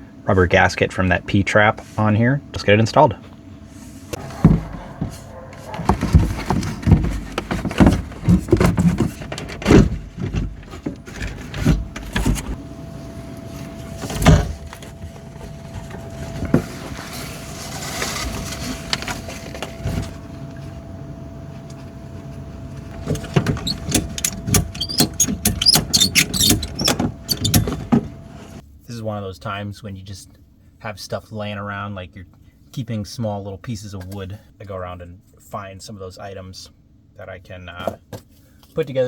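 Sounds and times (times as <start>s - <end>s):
plastic pipe knocking and clattering: 4.2s - 12.6s
rattling clicks: 22.9s - 28.6s.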